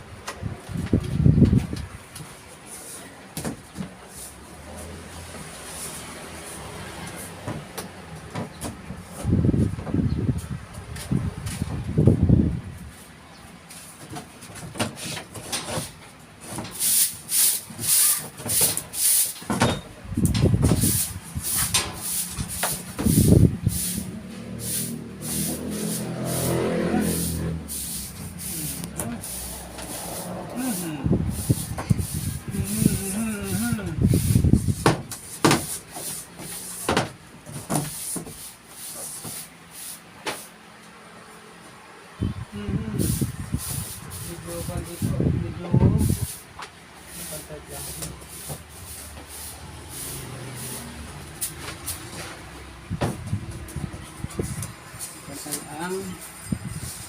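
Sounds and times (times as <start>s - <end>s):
handsaw cutting wood: 21.6s - 33.2s
heavy wooden thuds: 34.7s - 35.8s, 52.9s - 54.0s
carpentry knocks and bumps: 34.8s - 35.8s, 36.8s - 38.4s, 53.0s - 53.3s.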